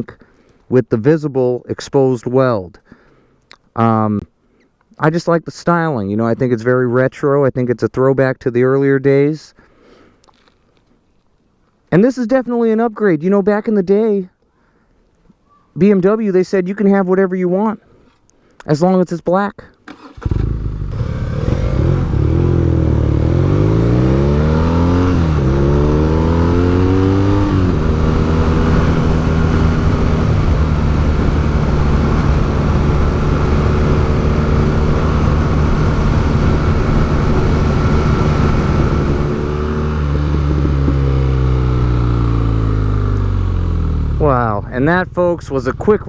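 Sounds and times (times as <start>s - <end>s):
motorcycle engine accelerating: 20.0s - 46.0s.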